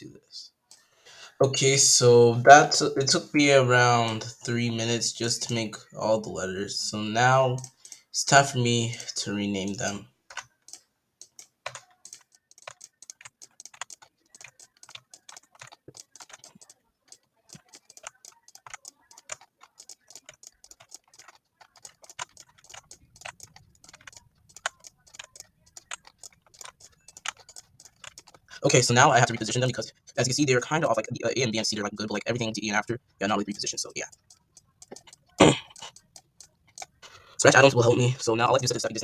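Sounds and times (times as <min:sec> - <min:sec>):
keyboard typing clicks: 0:07.5 - 0:37.8.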